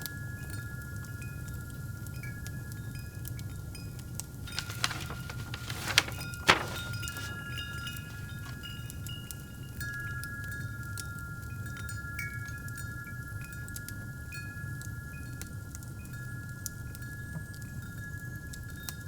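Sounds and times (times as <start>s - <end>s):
fireplace crackling: 4.3s - 8.9s.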